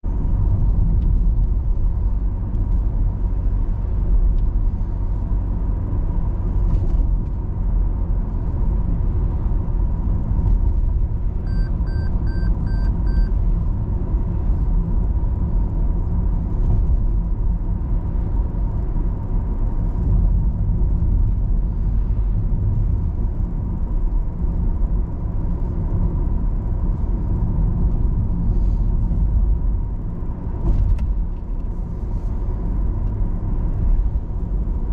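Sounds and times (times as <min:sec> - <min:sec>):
car engine and tyre rumble: 0:00.0 - 0:34.9
quick electronic beeps: 0:11.5 - 0:13.3.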